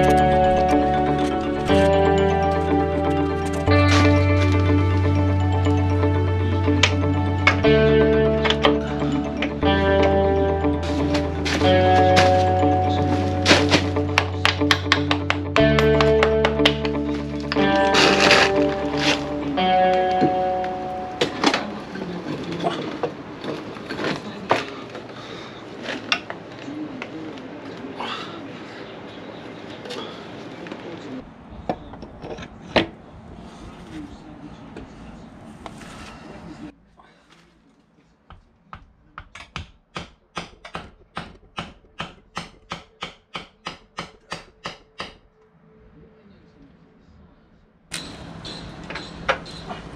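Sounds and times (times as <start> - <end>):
handling noise: 10.8 - 25.1.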